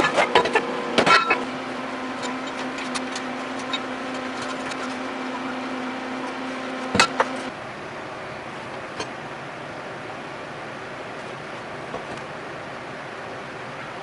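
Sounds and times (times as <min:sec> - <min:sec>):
power tool humming: 0:00.6 - 0:07.5.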